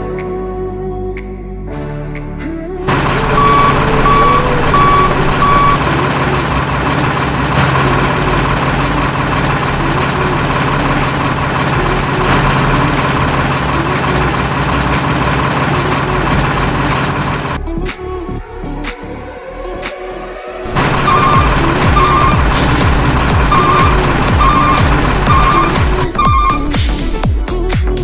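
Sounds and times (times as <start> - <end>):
truck engine rumble: 2.8 - 18.8, 20.6 - 28.0
reversing alarm beeps: 3.2 - 5.9, 20.7 - 26.7.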